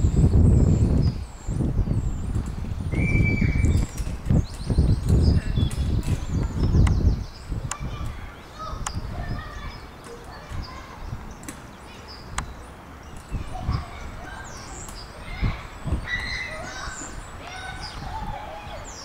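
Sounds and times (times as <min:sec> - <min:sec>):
bird chirps and calls: 0:00.0 - 0:19.0.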